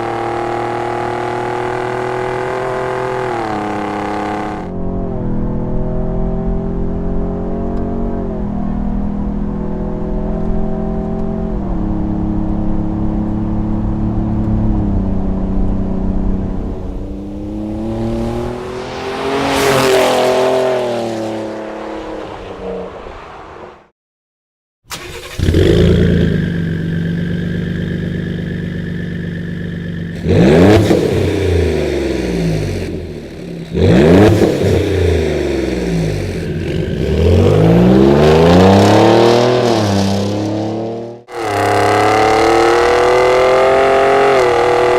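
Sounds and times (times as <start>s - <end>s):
truck engine revving: 15.5s - 23.0s, 24.9s - 44.9s.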